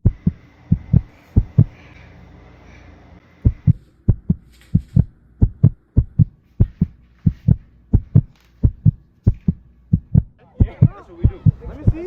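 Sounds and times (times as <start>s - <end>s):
heartbeat thuds: 0.0s - 1.8s, 3.4s - 12.0s.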